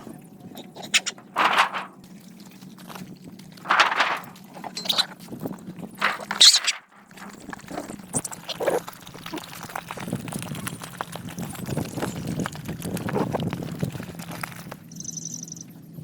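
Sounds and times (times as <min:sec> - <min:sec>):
dogs chewing and lapping: 0:01.9 - 0:03.7, 0:07.2 - 0:15.0.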